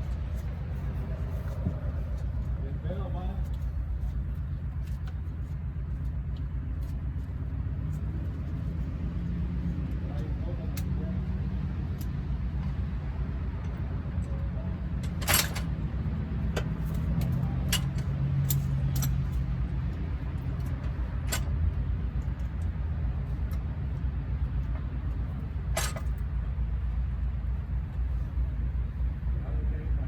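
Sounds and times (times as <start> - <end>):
steady low motor hum: 0.0 - 30.0
metal tools clinking: 15.0 - 15.8, 16.6 - 19.4, 25.8 - 26.2.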